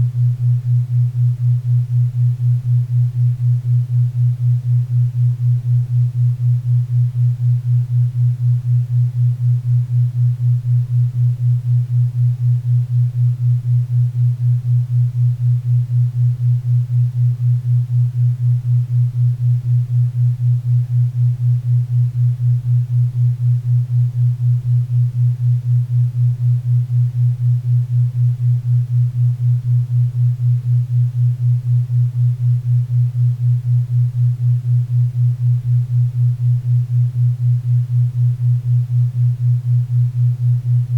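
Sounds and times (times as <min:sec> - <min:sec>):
low pulsing tone: 0:11.9 - 0:40.9.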